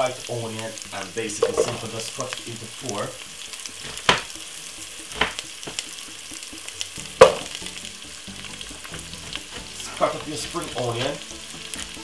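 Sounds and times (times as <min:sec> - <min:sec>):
vegetables sizzling in oil: 0:00.0 - 0:12.0
sharp knocks: 0:05.1 - 0:05.9.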